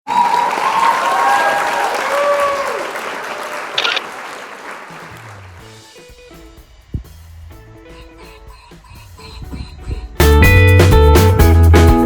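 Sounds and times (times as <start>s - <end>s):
crowd applauding and cheering: 0.1s - 5.8s.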